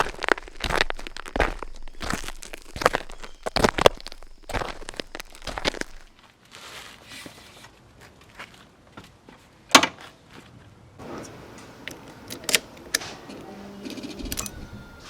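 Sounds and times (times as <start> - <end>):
rustling: 0.0 - 6.2
handling clicks: 14.2 - 14.6.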